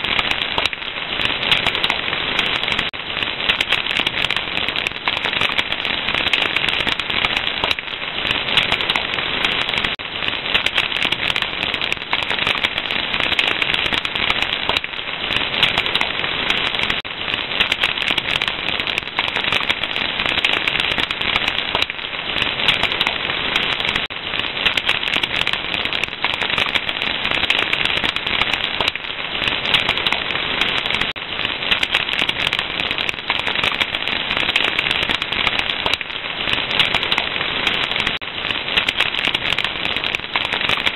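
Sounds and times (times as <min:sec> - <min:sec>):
fire crackling: 0:00.0 - 0:40.9.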